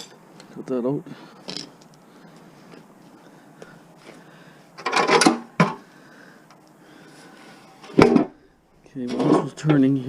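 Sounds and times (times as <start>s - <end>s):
metal tools clanking and rattling: 9.0s - 9.9s.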